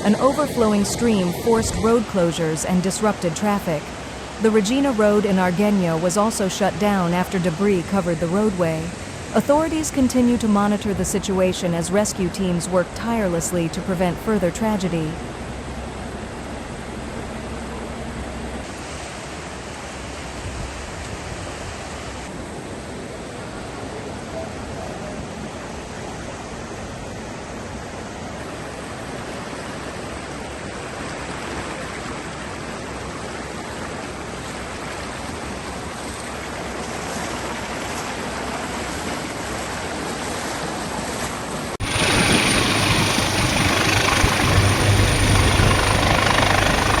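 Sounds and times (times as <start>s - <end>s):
floodwater rushing: 0.0s - 14.6s, 27.9s - 47.0s
low steady hum: 0.0s - 20.3s, 41.8s - 47.0s.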